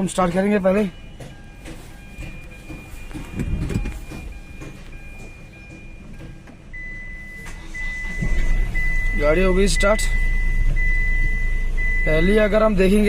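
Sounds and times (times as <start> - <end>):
car warning beeps: 0.0 - 13.0
steady warning tone: 0.0 - 13.0
dull thumps: 1.1 - 6.7.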